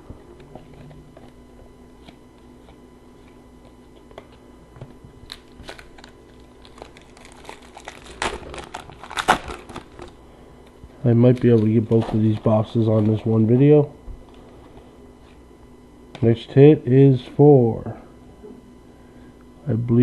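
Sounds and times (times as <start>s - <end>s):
foil wrapper crinkling: 5.1s - 10.2s.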